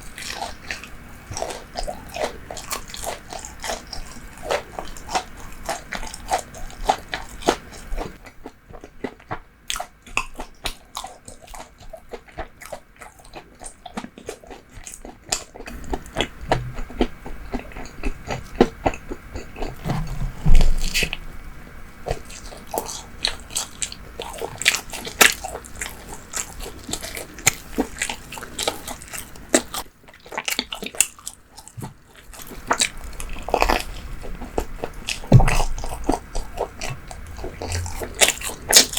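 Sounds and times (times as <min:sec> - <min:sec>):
person chewing bread: 0:00.0 - 0:38.9
wet mouth sounds: 0:33.6 - 0:38.9.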